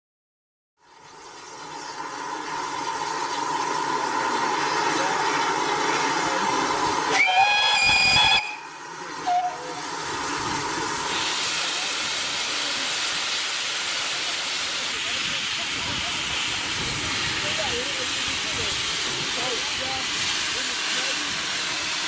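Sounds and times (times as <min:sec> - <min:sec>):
steam locomotive hissing: 0:01.0 - 0:22.0
shrill whistle blast: 0:07.2 - 0:08.7.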